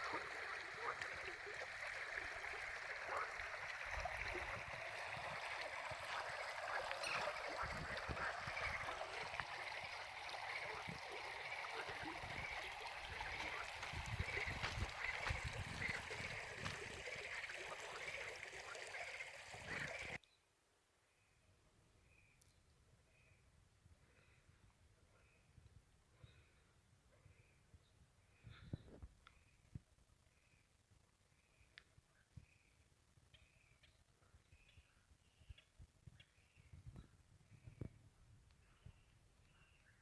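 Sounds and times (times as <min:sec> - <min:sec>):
stream water rushing: 0:00.0 - 0:20.2.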